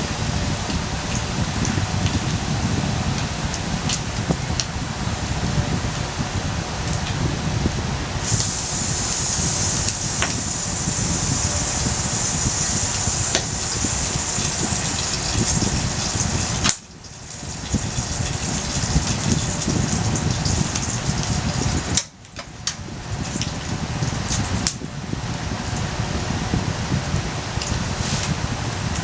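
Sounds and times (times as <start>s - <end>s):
wood fire burning: 8.0s - 29.0s
fire crackles: 8.1s - 24.8s.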